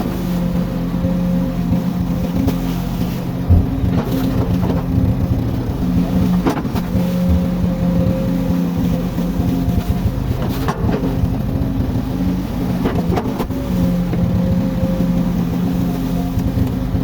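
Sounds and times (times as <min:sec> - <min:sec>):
excavator diesel engine running: 0:00.0 - 0:17.0
short knocks: 0:03.5 - 0:07.8.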